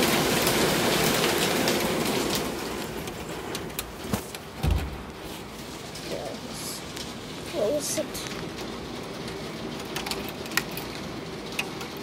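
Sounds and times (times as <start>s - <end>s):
rain falling: 0.0s - 12.0s
low thump: 4.6s - 5.2s.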